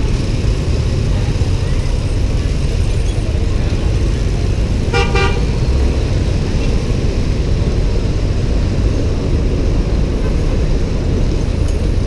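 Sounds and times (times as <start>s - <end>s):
motorbike rumble: 0.0s - 12.0s
vehicle horn toot: 4.9s - 5.5s.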